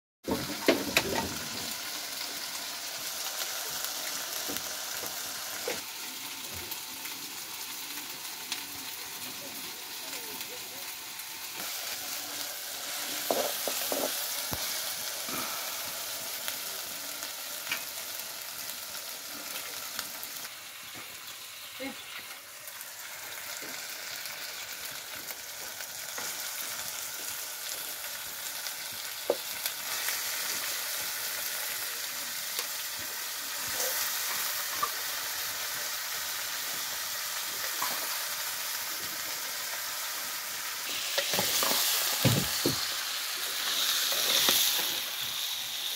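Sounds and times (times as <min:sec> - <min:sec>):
oil sizzling in a wok: 0:00.2 - 0:45.9
metal spoon scraping a pan: 0:13.2 - 0:14.2.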